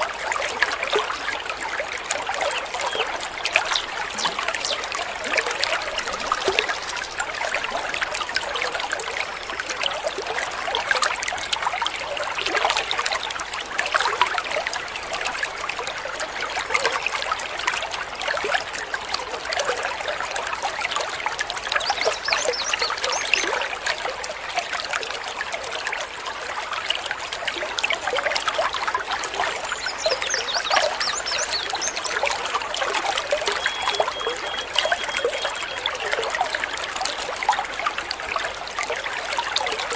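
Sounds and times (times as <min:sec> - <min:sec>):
stream babbling over stones: 0:00.0 - 0:39.9
bird whistling: 0:33.6 - 0:35.8.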